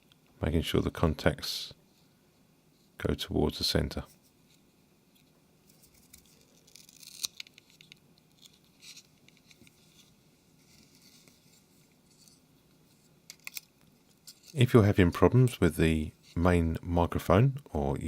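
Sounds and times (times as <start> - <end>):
small parts clicking and scratching: 4.0 - 14.6.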